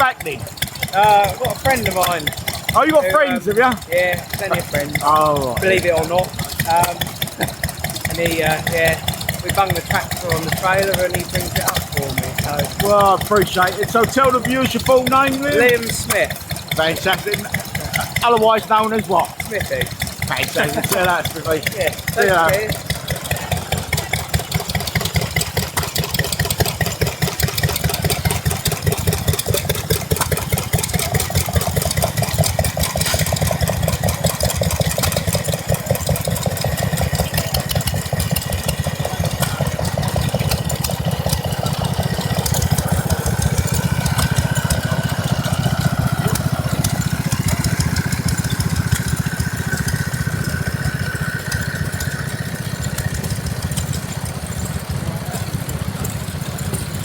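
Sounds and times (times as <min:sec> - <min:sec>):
small stationary engines running: 0:00.0 - 0:57.0.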